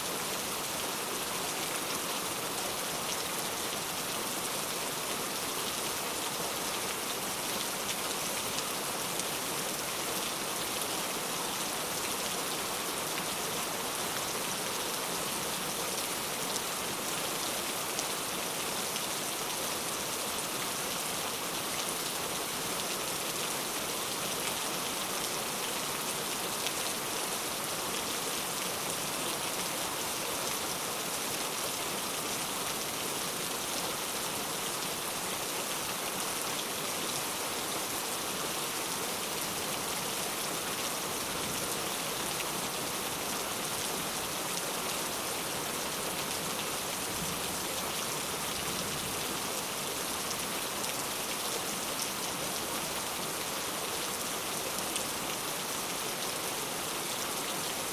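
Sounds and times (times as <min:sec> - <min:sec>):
heavy rain on hard surfaces: 0:00.0 - 0:57.9.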